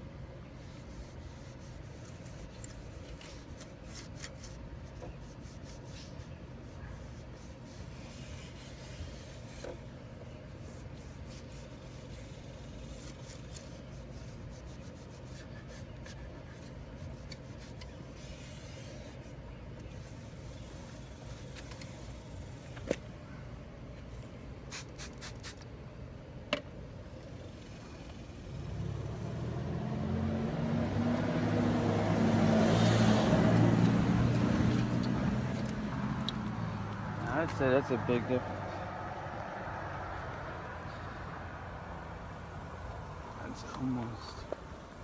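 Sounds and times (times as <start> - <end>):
rubbing strokes on plastic lens: 0.4 - 22.9, 24.7 - 25.7, 33.3 - 37.6.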